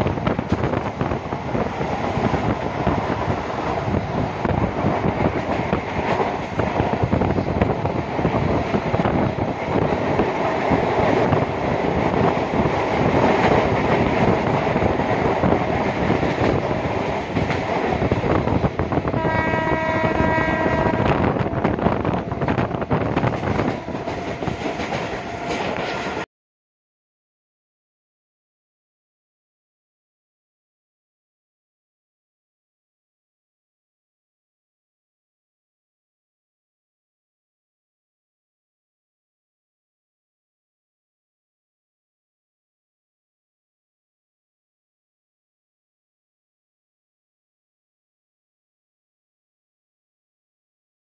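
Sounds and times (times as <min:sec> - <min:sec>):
train wheels rumbling on rails: 0:00.0 - 0:26.3
train horn: 0:19.0 - 0:21.6.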